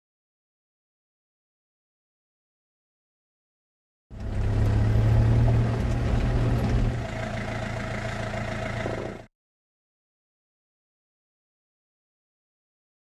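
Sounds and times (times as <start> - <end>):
vehicle engine idling: 4.1 - 9.3.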